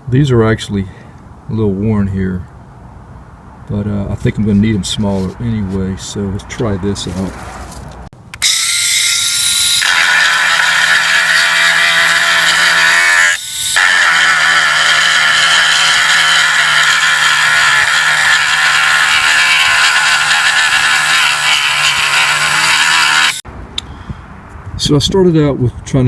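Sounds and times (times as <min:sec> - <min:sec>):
rotary tool grinding plastic: 0:07.0 - 0:23.4
rotary tool whining: 0:08.4 - 0:23.4.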